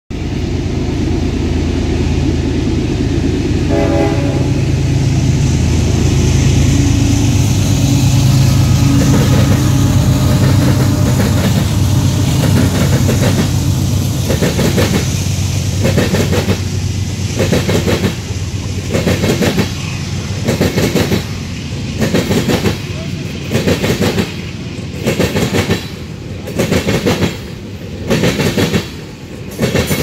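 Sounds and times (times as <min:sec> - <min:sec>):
diesel locomotive rumbling past: 0:00.1 - 0:30.0
train horn: 0:03.6 - 0:04.9, 0:06.6 - 0:13.7.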